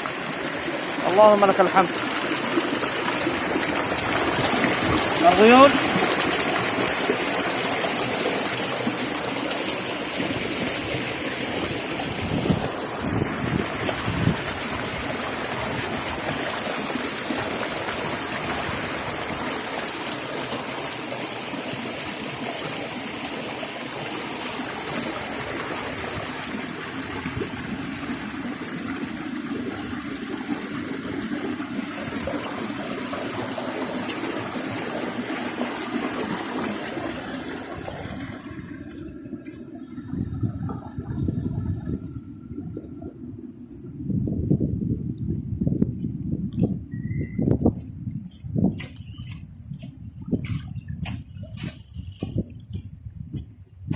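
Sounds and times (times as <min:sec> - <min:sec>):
stream water trickling: 0:00.0 - 0:53.9.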